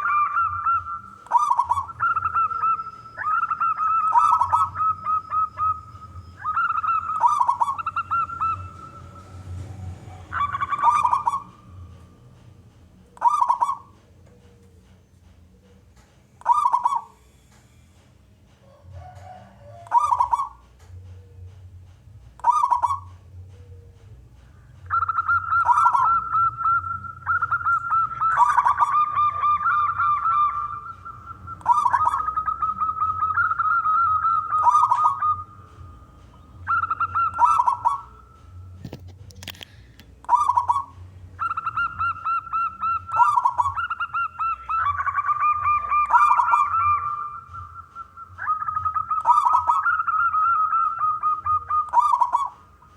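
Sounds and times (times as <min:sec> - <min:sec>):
dove cooing: 0:00.0 - 0:17.4, 0:18.6 - 0:21.8, 0:22.4 - 0:52.9.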